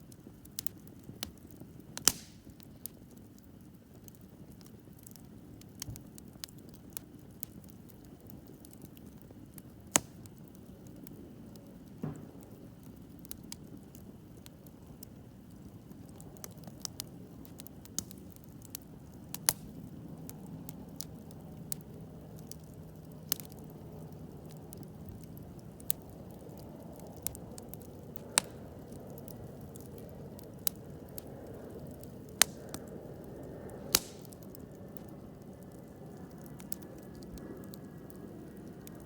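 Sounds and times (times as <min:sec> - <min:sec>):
campfire crackling pops: 0:00.0 - 0:39.0
rush of flame: 0:02.0 - 0:03.1, 0:23.2 - 0:39.0.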